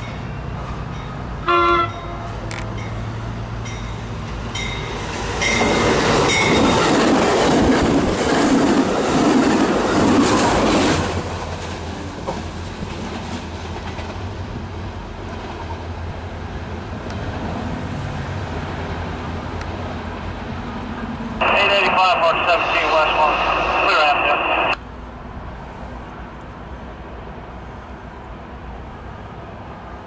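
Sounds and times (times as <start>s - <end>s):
train rushing past: 0.0s - 30.0s.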